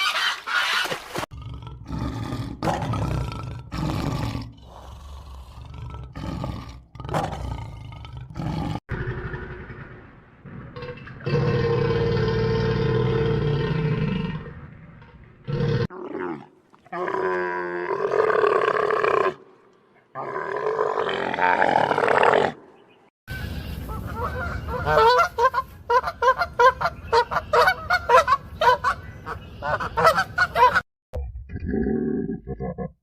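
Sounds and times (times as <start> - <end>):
waterfowl honking: 23.5 - 30.8.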